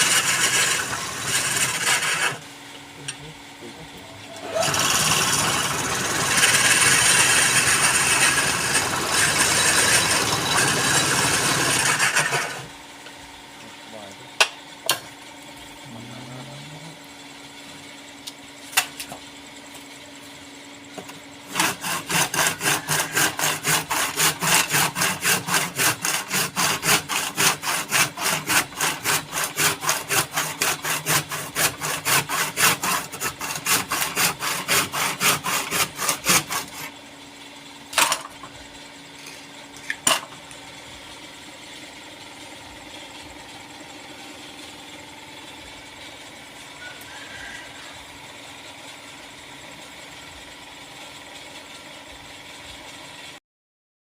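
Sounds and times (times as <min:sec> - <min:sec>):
wood being worked with strokes: 0:00.0 - 0:02.6, 0:04.4 - 0:12.8, 0:21.0 - 0:37.0
steady low hum: 0:00.0 - 0:53.3.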